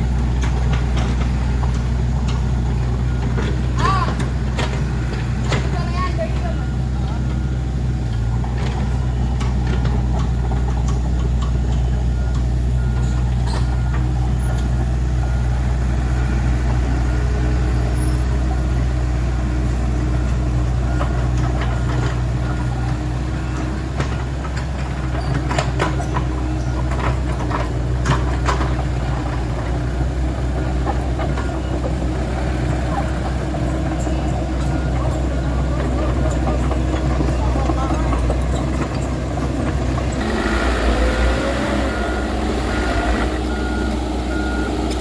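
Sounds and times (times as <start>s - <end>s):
diesel truck engine running: 0.0s - 45.0s.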